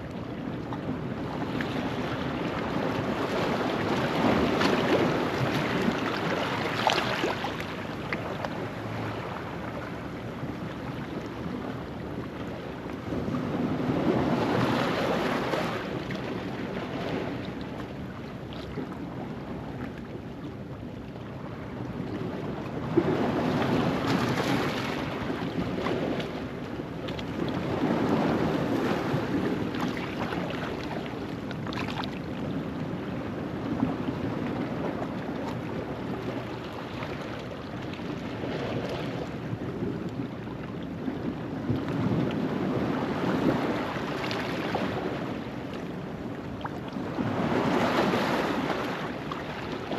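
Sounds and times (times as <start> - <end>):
wind on microphone: 0.0 - 49.9
waves washing over rocks: 1.8 - 10.8, 40.9 - 49.9.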